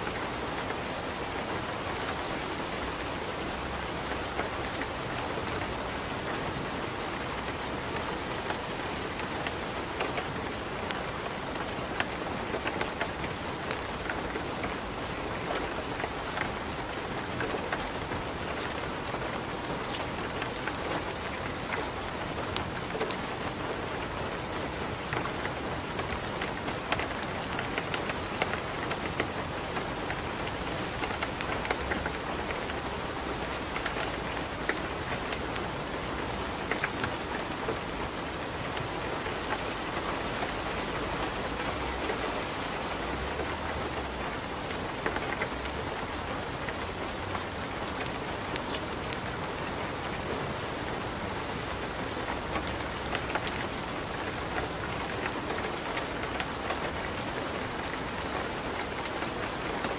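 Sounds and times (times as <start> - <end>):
steady rain: 0.0 - 59.9
sharp pops and crackles: 46.5 - 59.9.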